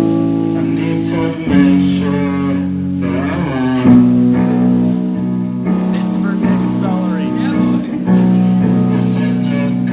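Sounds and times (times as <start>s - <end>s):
live band with guitar and bass: 0.0s - 9.9s.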